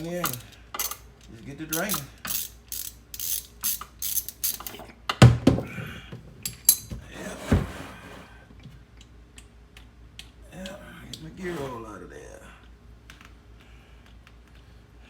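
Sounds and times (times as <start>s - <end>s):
socket ratchet clicking: 0.0s - 1.1s, 1.7s - 4.8s.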